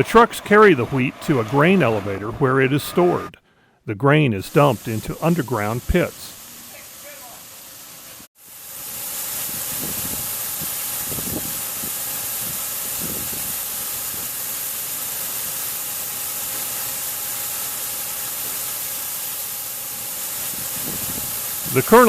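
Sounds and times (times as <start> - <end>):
grain pouring hiss: 0.0 - 3.4, 4.2 - 22.0.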